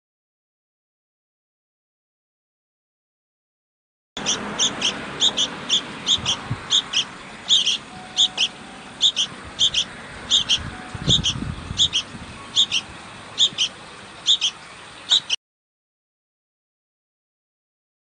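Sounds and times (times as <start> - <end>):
bird two-note chirp: 6.1 - 13.7.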